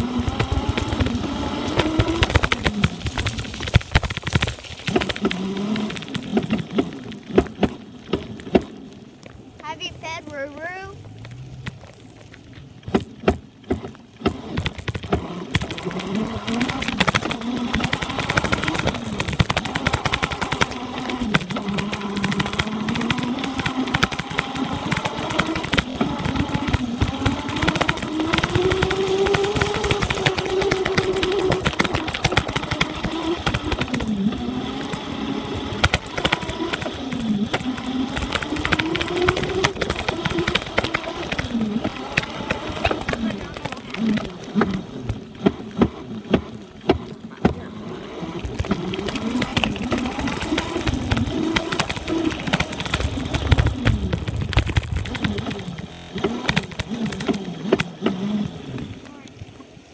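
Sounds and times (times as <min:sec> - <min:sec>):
steady rushing noise: 0:00.0 - 0:07.9, 0:47.6 - 0:59.9
dirt bike engine revving: 0:00.0 - 0:08.9, 0:12.8 - 0:59.2
sharp exhaust pops: 0:00.0 - 0:59.2.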